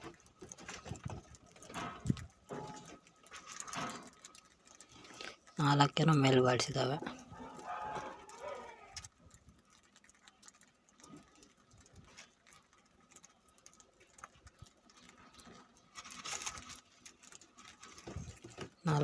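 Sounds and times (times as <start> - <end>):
budgies ticking and scratching: 0.0 - 19.0
rustle: 14.9 - 19.0.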